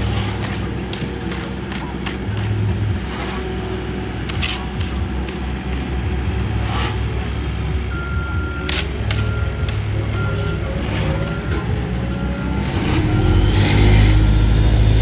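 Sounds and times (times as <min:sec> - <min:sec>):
backup alarm beeping: 0:00.0 - 0:15.0
heavy machinery engines running: 0:00.0 - 0:15.0.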